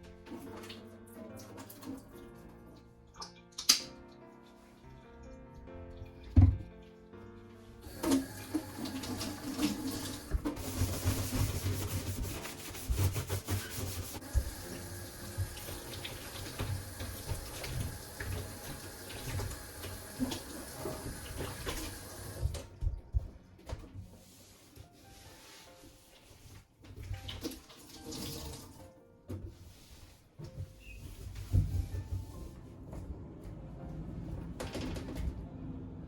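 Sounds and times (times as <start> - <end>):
tap running into sink: 14.2 - 22.6.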